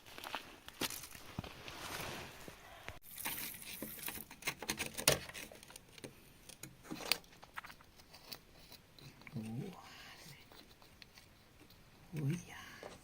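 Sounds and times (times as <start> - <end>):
gritty material scraping and clicking: 3.2 - 12.4.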